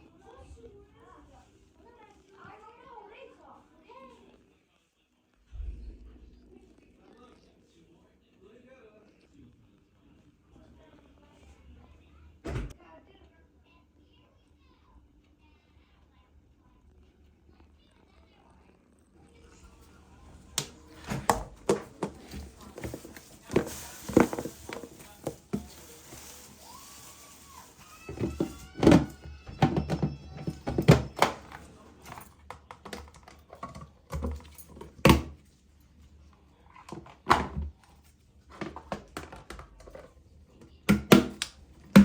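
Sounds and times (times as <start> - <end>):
objects knocking and thunking: 20.5 - 26.6, 27.7 - 35.4, 36.8 - 37.8, 38.5 - 40.1, 40.9 - 42.0.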